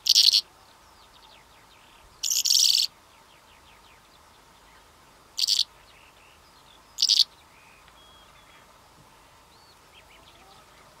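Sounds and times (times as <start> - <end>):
loud rasping bird calls: 0.0 - 0.5, 2.2 - 2.9, 5.4 - 5.7, 7.0 - 7.3
faint bird chirps and whistles: 0.0 - 4.0, 5.4 - 8.6.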